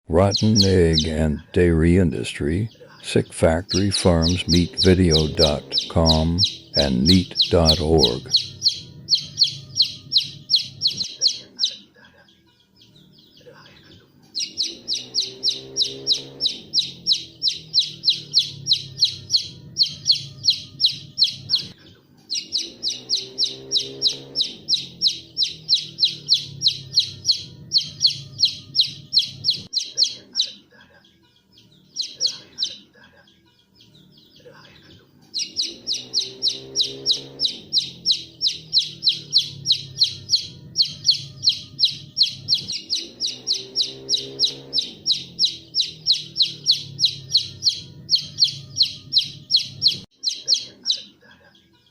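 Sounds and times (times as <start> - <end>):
low rising and falling bird call: 0.1 - 11.9, 14.3 - 30.7, 31.4 - 32.8, 35.3 - 51.1
bird chirping rapidly: 0.1 - 12.0, 12.6 - 30.7, 31.3 - 32.9, 33.5 - 51.2.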